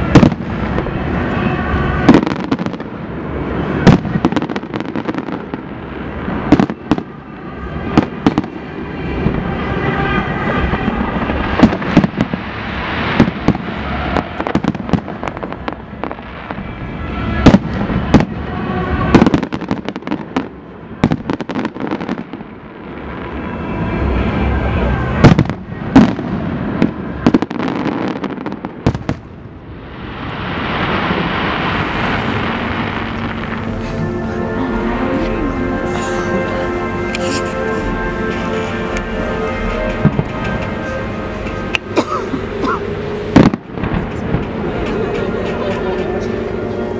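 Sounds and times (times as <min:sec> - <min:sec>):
fireworks crackling: 0:00.0 - 0:46.9
firework shells exploding: 0:43.3 - 0:44.5.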